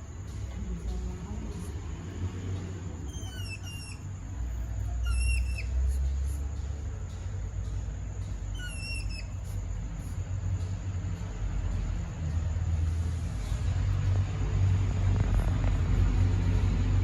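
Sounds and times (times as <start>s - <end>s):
low rumble: 0.0s - 17.0s
hedgehogs whistling chirps: 3.0s - 6.6s, 8.5s - 9.6s.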